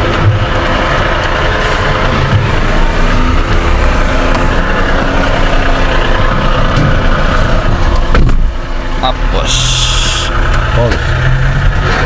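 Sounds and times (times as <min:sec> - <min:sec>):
car engine idling: 0:00.0 - 0:12.0
street noise: 0:00.0 - 0:12.0.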